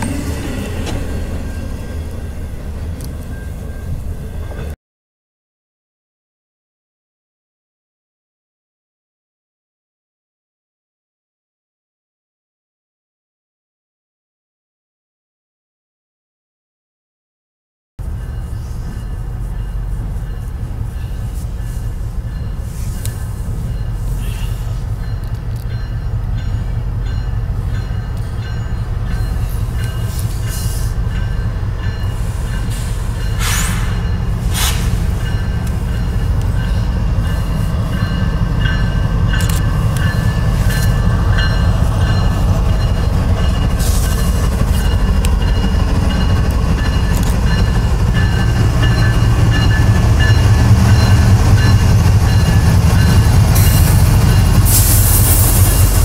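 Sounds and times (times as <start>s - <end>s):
diesel locomotive engines rumbling: 0.0s - 4.8s, 18.0s - 56.0s.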